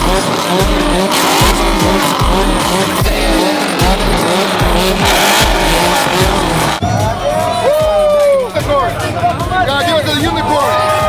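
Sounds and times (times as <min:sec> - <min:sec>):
car engine revving hard: 0:00.0 - 0:06.8
tyres squealing: 0:00.0 - 0:06.8.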